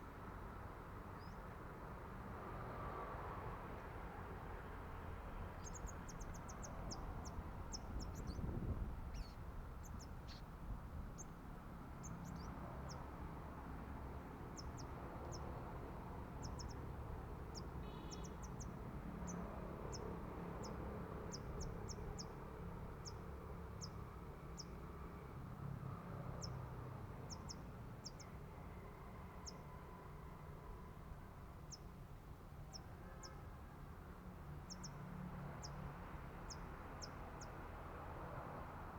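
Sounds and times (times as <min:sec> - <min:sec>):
small bird chirping: 0:05.6 - 0:11.4, 0:12.0 - 0:13.1, 0:16.4 - 0:22.4, 0:34.7 - 0:35.0.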